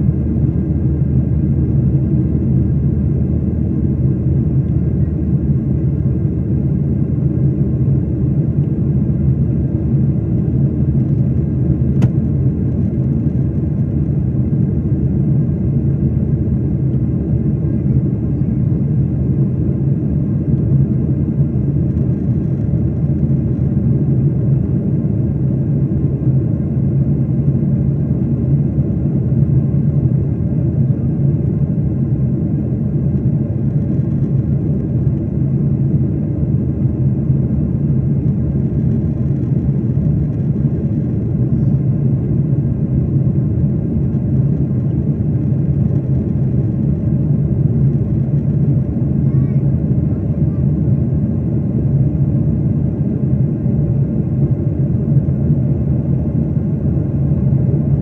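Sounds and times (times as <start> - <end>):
jet engine drone in cabin: 0.0 - 58.0.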